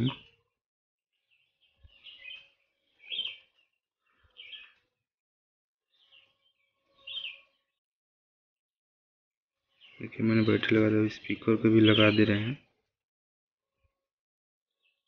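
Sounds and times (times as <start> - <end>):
faint bird chirps: 1.2 - 4.9, 5.9 - 7.8.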